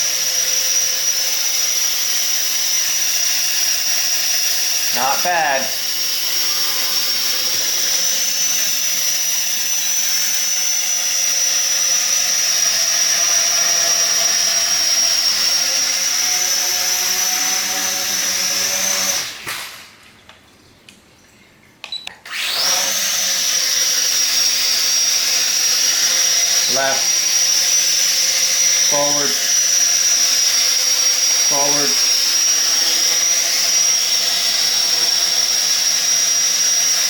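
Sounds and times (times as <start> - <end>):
drone propellers whining: 5.2 - 19.3, 22.3 - 34.1.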